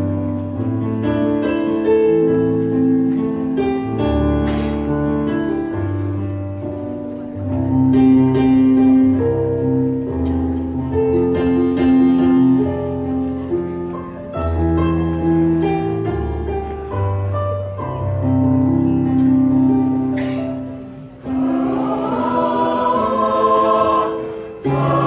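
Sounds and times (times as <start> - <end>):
piano accompaniment: 0.0 - 25.0
choir singing: 21.2 - 25.0.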